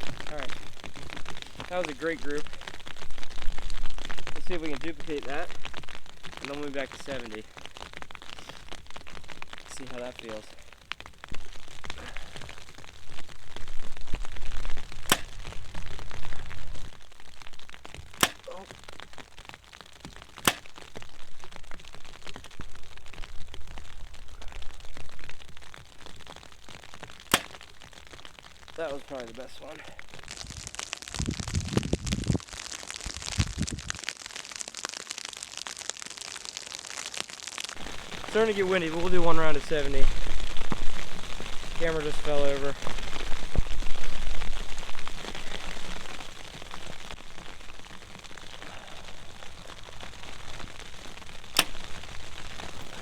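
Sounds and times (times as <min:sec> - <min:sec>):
snow ticking on microphone: 0:00.0 - 0:53.0
bow shot crack: 0:13.5 - 0:23.9, 0:26.7 - 0:28.4, 0:44.5 - 0:53.0
wind rumble on microphone: 0:30.1 - 0:34.0, 0:37.8 - 0:47.5.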